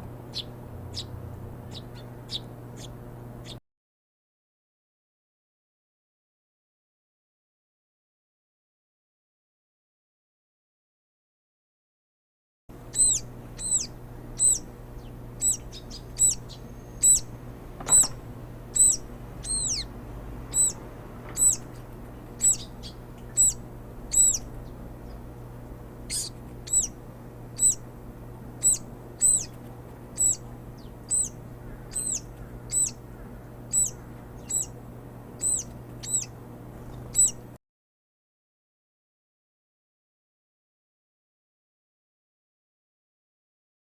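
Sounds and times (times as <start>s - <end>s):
small bird high call: 0.2s - 3.6s, 12.8s - 19.9s, 20.5s - 25.2s, 26.1s - 27.9s, 28.5s - 34.8s, 35.4s - 37.5s.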